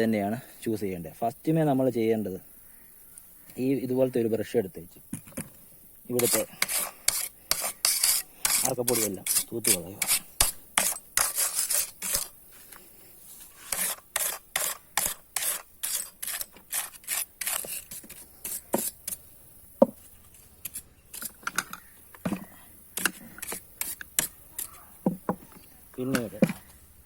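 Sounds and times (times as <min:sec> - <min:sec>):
stiff brush scrubbing: 0:06.2 - 0:12.6, 0:13.3 - 0:19.0.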